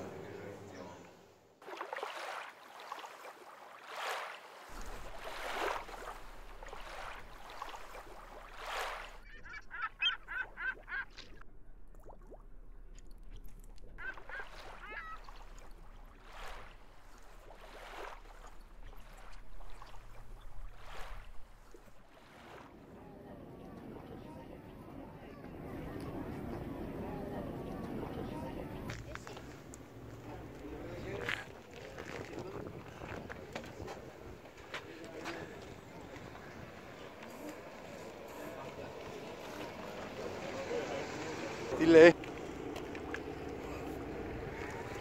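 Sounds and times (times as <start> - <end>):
sea water lapping against quay: 0.0 - 45.0
bird calling: 5.1 - 11.4, 13.9 - 21.4.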